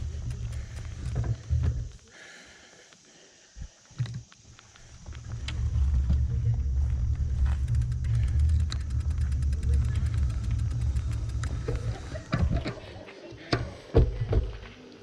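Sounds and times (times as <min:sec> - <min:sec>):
fast even ticking: 0:00.0 - 0:01.2, 0:07.0 - 0:12.2
sharp clicks: 0:00.0 - 0:01.4, 0:07.4 - 0:12.1.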